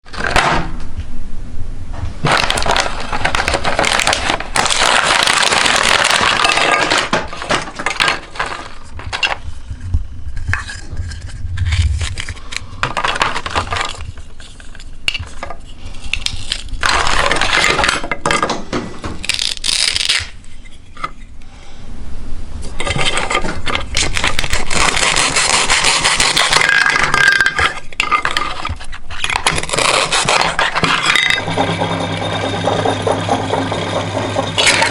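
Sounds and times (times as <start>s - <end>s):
grinder crunching plastic: 0.0s - 0.7s, 2.2s - 9.5s, 10.5s - 20.4s, 22.8s - 34.9s
low motor hum: 31.4s - 34.9s.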